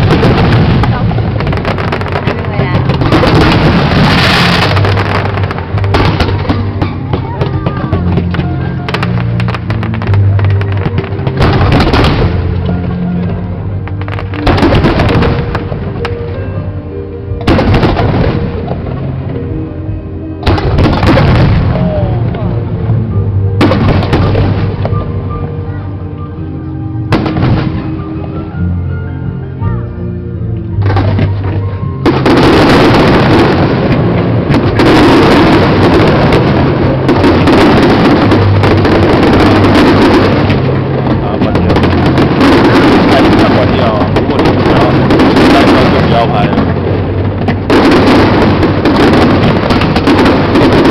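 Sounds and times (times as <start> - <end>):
fireworks bursting: 0.0 - 16.2, 17.4 - 19.0, 20.4 - 22.1, 23.6 - 25.2, 30.8 - 50.9
sharp crackles: 0.0 - 16.4, 23.6 - 25.2, 30.8 - 50.9
music playing: 0.0 - 50.9.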